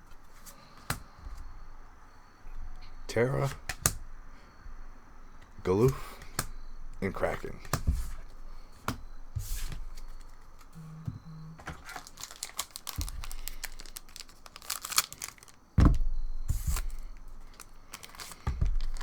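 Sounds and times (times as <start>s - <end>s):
foil wrapper crinkling and tearing: 11.8s - 15.8s, 16.6s - 19.0s
thump: 15.8s - 16.9s.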